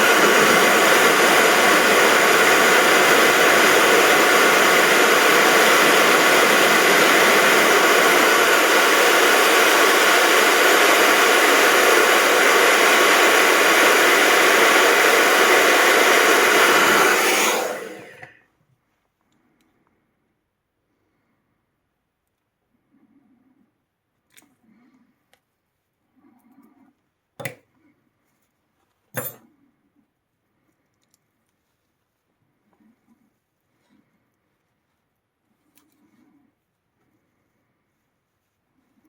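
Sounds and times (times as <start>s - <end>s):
hot-air tool blowing: 0.0s - 18.5s.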